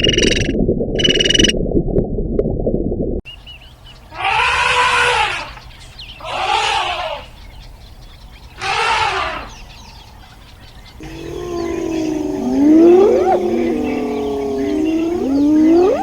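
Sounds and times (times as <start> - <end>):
harsh animal call: 4.1 - 5.6, 6.2 - 7.3, 8.6 - 9.6, 11.0 - 16.0.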